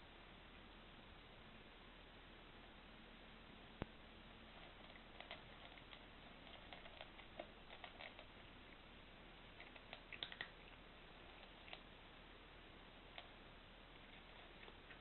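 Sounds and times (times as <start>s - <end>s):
cat crunching dry kibble: 4.5s - 11.9s, 14.0s - 15.0s.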